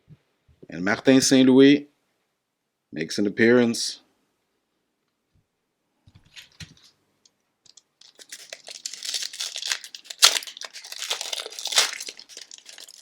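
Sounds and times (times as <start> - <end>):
wrapper tearing and crinkling: 7.7 - 13.0.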